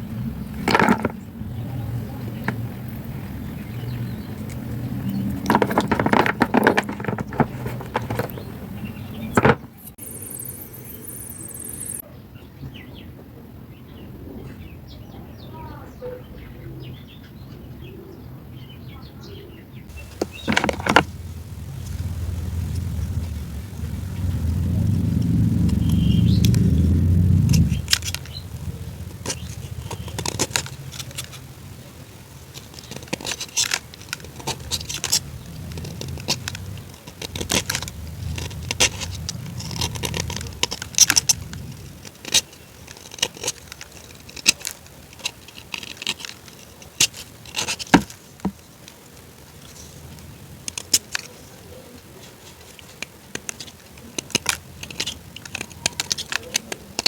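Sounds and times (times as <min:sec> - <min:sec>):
low rumble: 0:19.9 - 0:31.5
crunchy food being chewed: 0:19.9 - 0:57.0.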